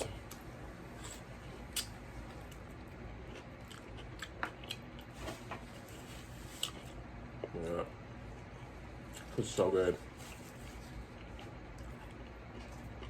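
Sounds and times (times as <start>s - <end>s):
low room hum: 0.0s - 13.0s
person chewing: 1.0s - 5.2s, 10.3s - 13.0s.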